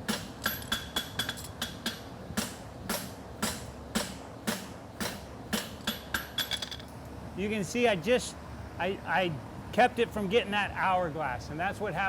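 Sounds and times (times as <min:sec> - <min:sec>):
hammer striking steel on anvil: 0:00.0 - 0:06.8.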